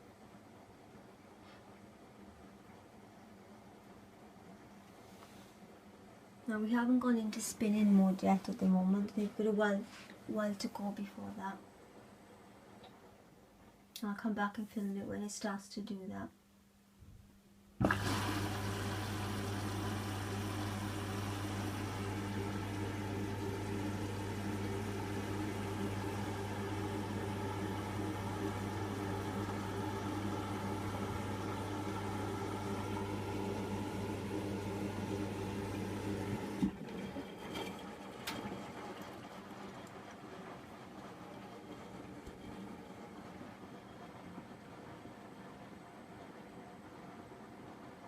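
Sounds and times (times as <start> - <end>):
washing machine humming: 5.6 - 13.8, 17.6 - 48.0.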